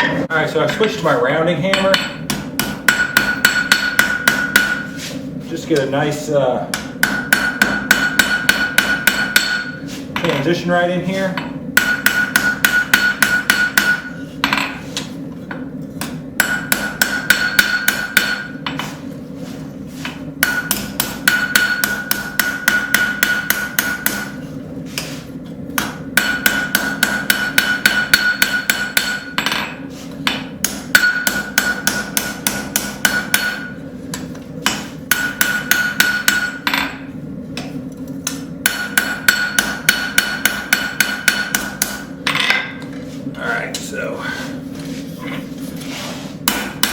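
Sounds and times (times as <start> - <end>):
steady low hum: 0.0 - 46.9
hammer striking metal on anvil: 1.6 - 5.0, 6.7 - 10.4, 11.4 - 14.8, 15.5 - 19.0, 20.0 - 24.4, 25.8 - 42.9, 46.4 - 46.9
high ring from anvil: 31.0 - 32.1.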